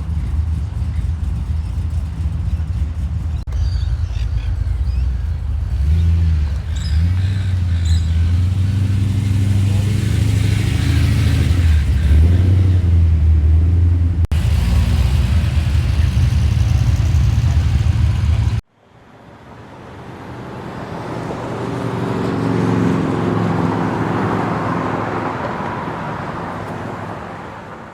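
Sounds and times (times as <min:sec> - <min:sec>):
muscle car engine running: 0:00.0 - 0:18.6
car passing by: 0:19.9 - 0:27.9.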